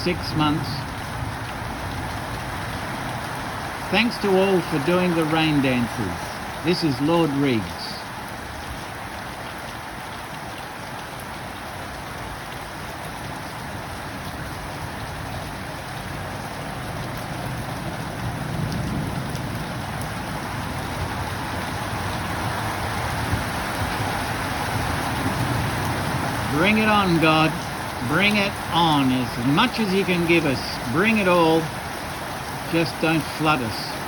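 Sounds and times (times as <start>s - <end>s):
heavy rain hissing: 0.0s - 10.0s, 10.7s - 34.0s
low rumble of thunder: 16.1s - 26.5s.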